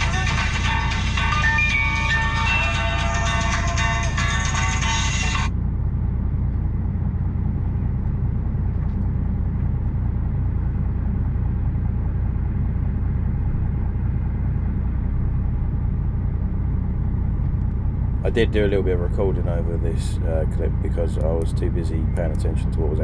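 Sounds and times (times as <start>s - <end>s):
music: 0.0s - 5.5s
lorry engine rumble: 17.1s - 23.0s.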